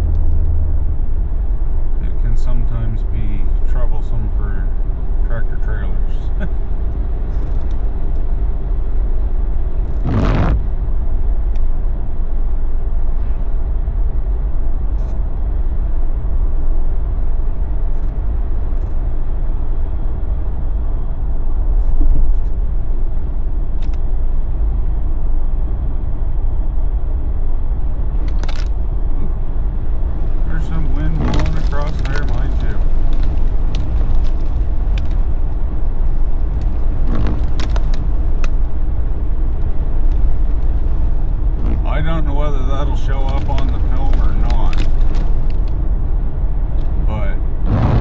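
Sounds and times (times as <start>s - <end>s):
road and engine rumble in cabin: 0.0s - 48.0s
short loud burst of noise: 47.6s - 48.0s.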